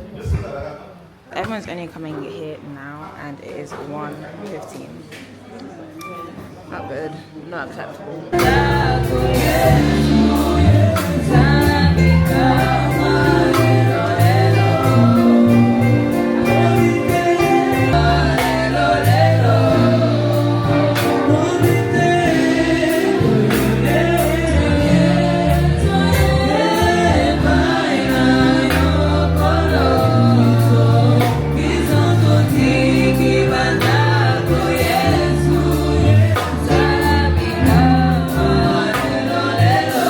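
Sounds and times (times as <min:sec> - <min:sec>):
gospel choir singing: 0:08.3 - 0:40.0
bass line: 0:08.4 - 0:40.0
steady beat: 0:08.4 - 0:40.0.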